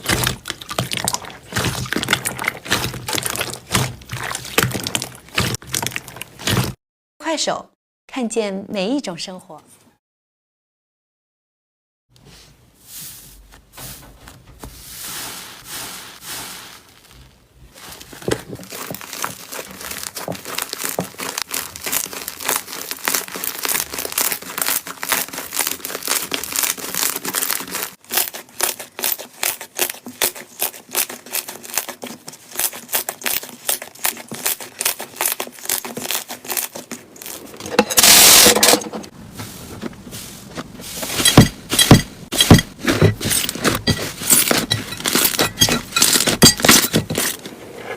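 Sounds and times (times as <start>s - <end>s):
slime crackling and popping: 0.0s - 6.8s, 16.8s - 38.4s
slime squelching: 0.0s - 6.8s, 14.6s - 47.4s.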